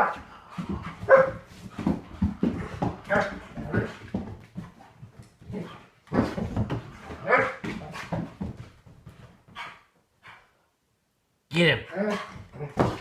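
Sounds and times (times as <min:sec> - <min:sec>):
dog barking and whining: 0:01.0 - 0:01.4, 0:07.1 - 0:07.6, 0:11.9 - 0:13.0.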